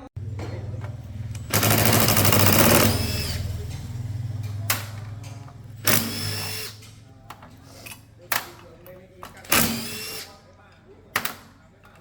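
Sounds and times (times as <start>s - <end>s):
impact wrench hammering: 0.2s - 7.0s, 9.2s - 10.3s.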